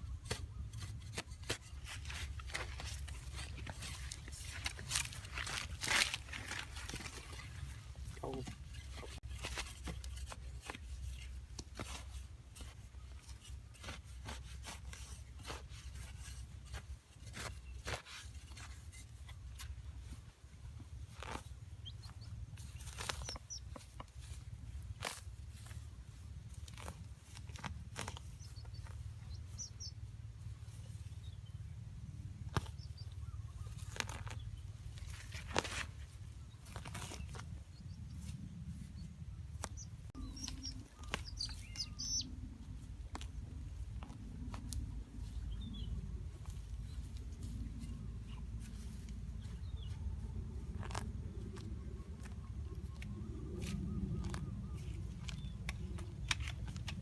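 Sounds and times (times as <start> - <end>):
hands scraping and rubbing materials: 0.0 - 31.4, 32.2 - 57.0
steady low rumble: 19.1 - 57.0
faint high bird chirps: 28.4 - 30.0, 39.0 - 42.4.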